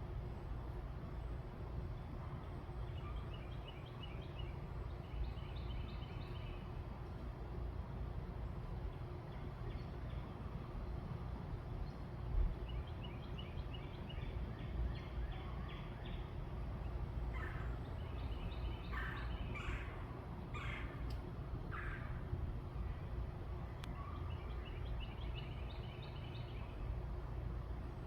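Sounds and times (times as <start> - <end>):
low background rumble: 0.0 - 28.0
birds calling: 12.6 - 22.8.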